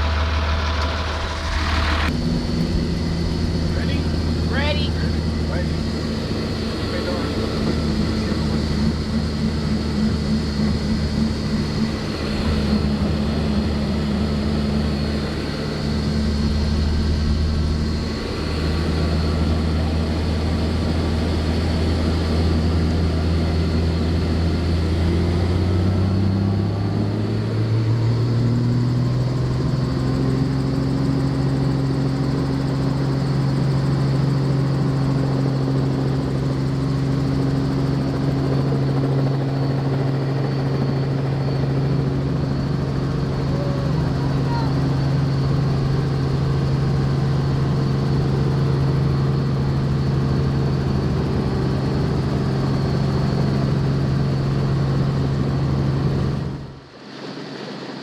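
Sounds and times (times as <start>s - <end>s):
helicopter engine and rotor hum: 0.0s - 58.0s.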